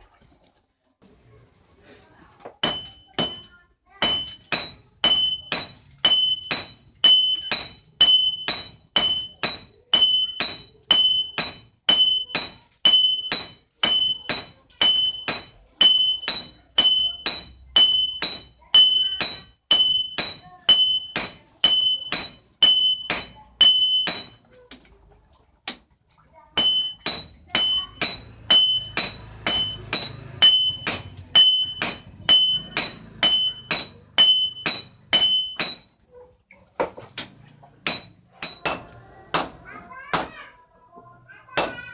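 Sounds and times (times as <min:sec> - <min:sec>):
hammer blows on steel anvil: 0:26.6 - 0:35.9.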